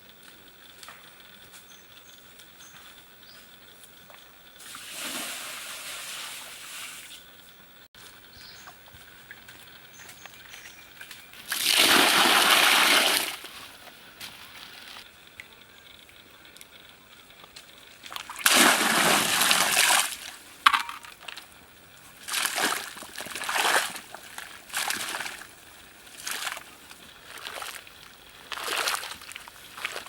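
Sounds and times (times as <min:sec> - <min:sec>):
water splashing and sloshing: 0:11.4 - 0:13.9, 0:17.9 - 0:21.5, 0:22.1 - 0:30.0.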